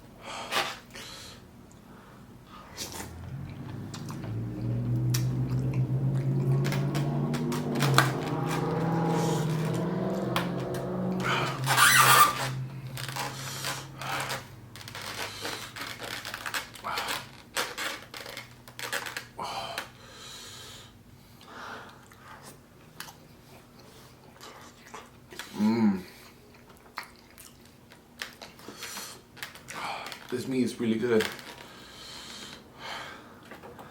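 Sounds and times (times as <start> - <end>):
person chewing food: 1.6 - 9.4, 21.4 - 30.3
wet mouth smacks and clicks: 4.9 - 8.1.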